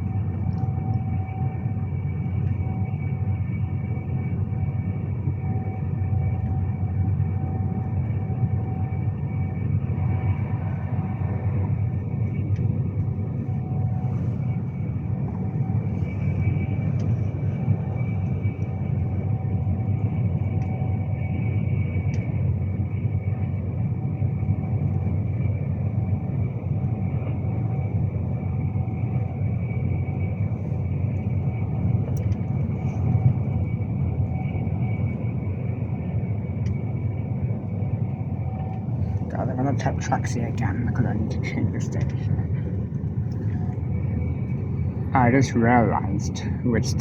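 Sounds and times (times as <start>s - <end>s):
train wheels rumbling on rail: 3.9s - 23.8s
light tick: 32.2s - 32.4s.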